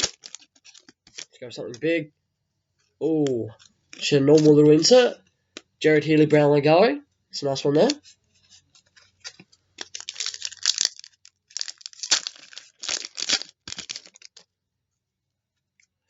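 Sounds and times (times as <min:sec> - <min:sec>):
wrapper tearing and crinkling: 0:00.0 - 0:01.4, 0:09.2 - 0:14.5.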